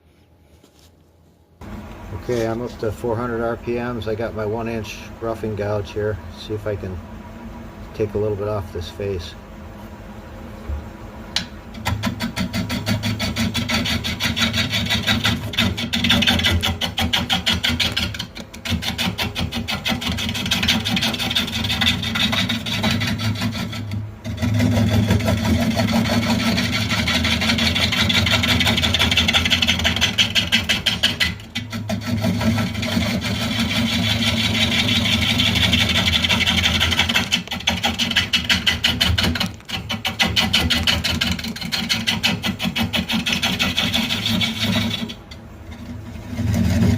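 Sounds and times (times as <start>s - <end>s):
gouge rasping on spinning wood: 11.8s - 46.9s
lathe motor hum: 11.8s - 46.9s.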